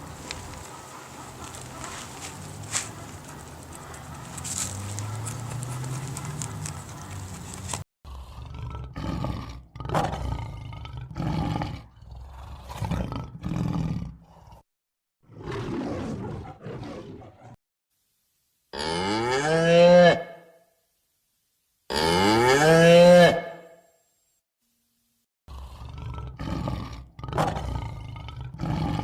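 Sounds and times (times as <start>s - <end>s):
tiger roaring: 0.0s - 14.6s, 15.3s - 17.6s, 25.5s - 29.0s
cow mooing: 18.8s - 20.4s, 21.9s - 23.7s.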